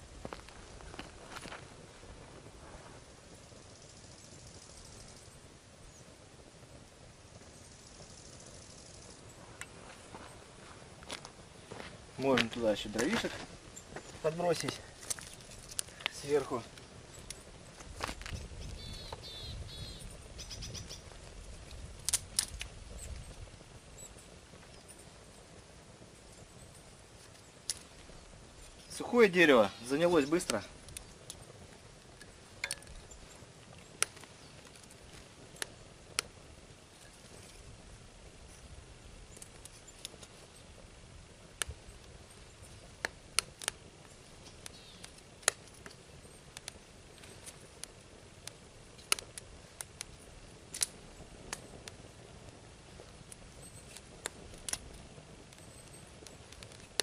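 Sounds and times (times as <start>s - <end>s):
faint steady hiss: 0.0s - 57.0s
wood fire crackling: 0.0s - 57.0s
small bird chirping and trilling: 18.3s - 21.1s, 44.4s - 45.1s
sharp cracks: 21.7s - 22.8s, 42.9s - 46.0s, 46.6s - 52.1s, 53.3s - 57.0s
sharp pops: 42.8s - 46.0s, 46.6s - 52.1s.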